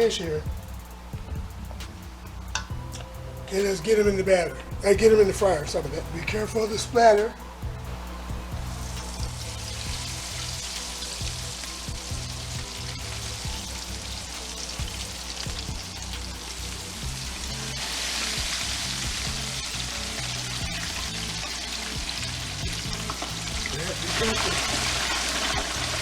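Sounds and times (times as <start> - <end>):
fish deep-frying in oil: 8.8 - 26.0.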